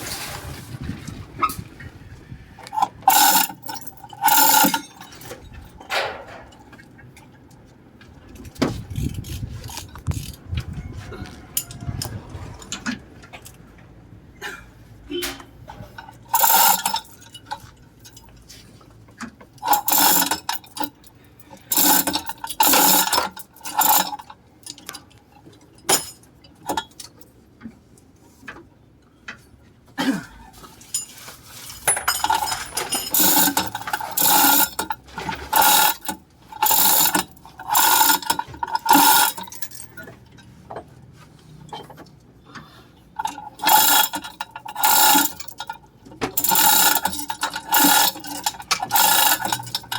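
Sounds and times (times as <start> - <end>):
ratchet wrench clicking: 3.1 - 5.2, 16.3 - 17.4, 19.6 - 21.0, 21.6 - 24.2, 32.2 - 39.9, 43.2 - 45.8, 46.4 - 49.9.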